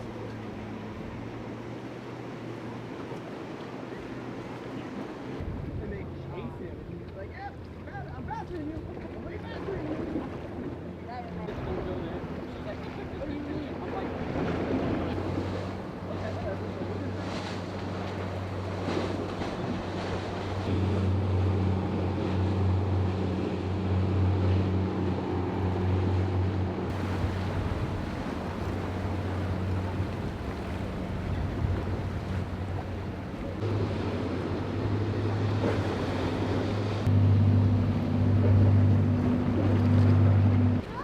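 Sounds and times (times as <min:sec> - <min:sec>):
boat engines humming: 0:00.0 - 0:41.0
waves: 0:00.0 - 0:41.0
wind buffeting microphone: 0:11.5 - 0:41.0.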